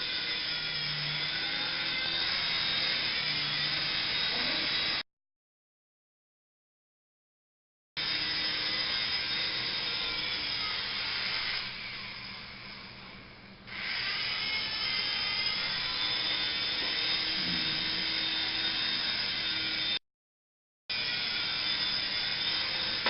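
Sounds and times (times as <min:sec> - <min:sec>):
toy helicopter motor whining: 0:00.0 - 0:05.0, 0:08.0 - 0:20.0, 0:20.9 - 0:23.0.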